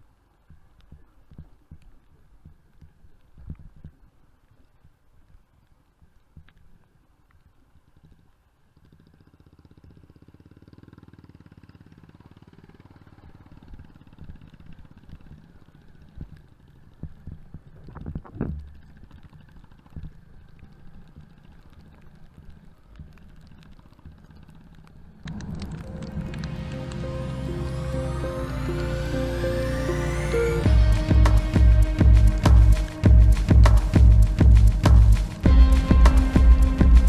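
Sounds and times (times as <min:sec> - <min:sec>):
muffled motorcycle engine running: 0:08.7 - 0:17.3.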